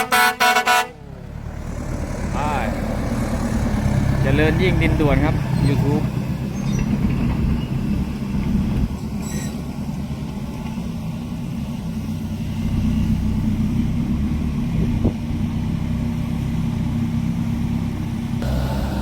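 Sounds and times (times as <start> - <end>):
vehicle engine running at low revs: 11.3 - 19.0.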